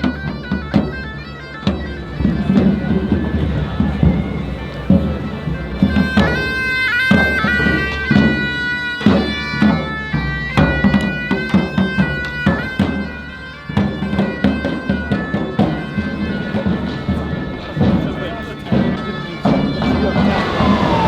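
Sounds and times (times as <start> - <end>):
bagpipe melody: 0.0 - 21.0
drum beats: 18.7 - 21.0.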